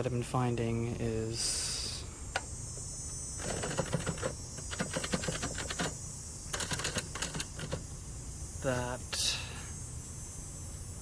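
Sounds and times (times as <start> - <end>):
manual typewriter keystrokes: 3.4 - 7.9.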